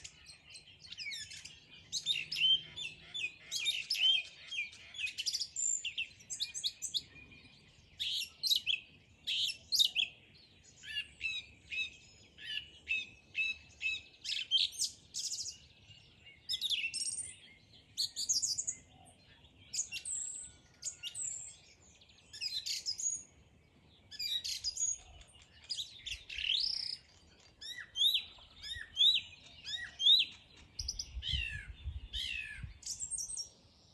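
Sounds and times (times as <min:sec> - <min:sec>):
songbirds singing and chirping: 0:00.0 - 0:33.9.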